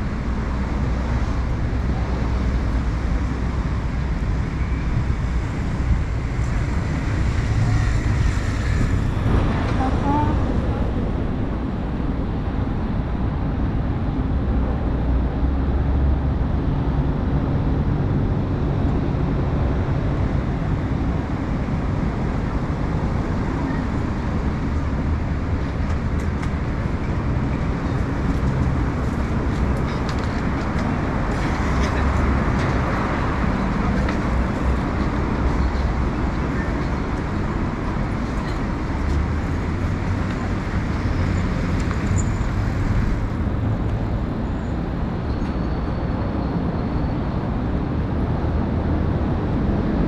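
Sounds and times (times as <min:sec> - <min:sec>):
road traffic rumble: 0:00.0 - 0:50.0
faint clicks and clatters: 0:28.2 - 0:32.8.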